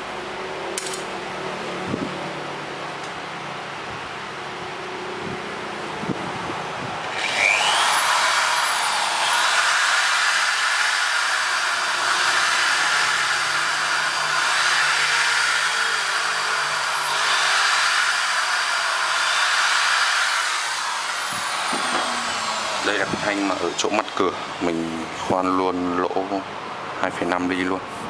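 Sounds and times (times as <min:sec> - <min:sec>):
electric drill boring: 0:07.0 - 0:25.2.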